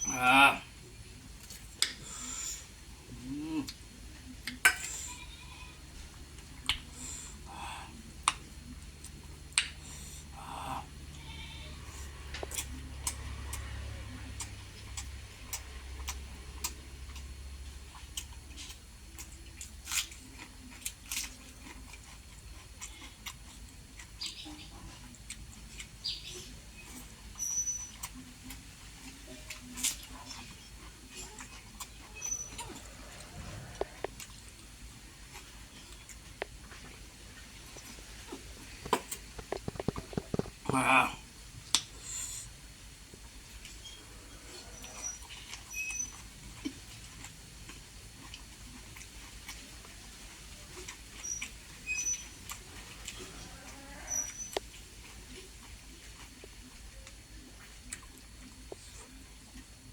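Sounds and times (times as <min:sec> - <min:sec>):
low steady hum: 0:00.0 - 0:59.9
person chewing food: 0:01.2 - 0:59.9
lip smacks: 0:01.4 - 0:05.0, 0:06.4 - 0:10.7, 0:12.3 - 0:17.3, 0:26.9 - 0:59.7.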